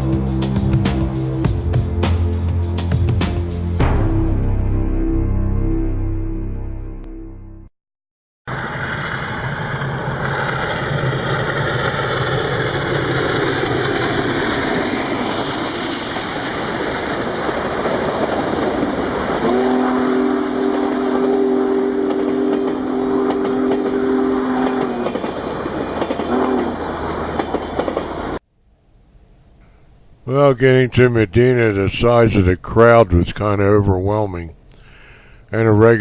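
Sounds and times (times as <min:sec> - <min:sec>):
train rumbling past: 0:08.5 - 0:28.4
train horn blast: 0:19.3 - 0:27.3.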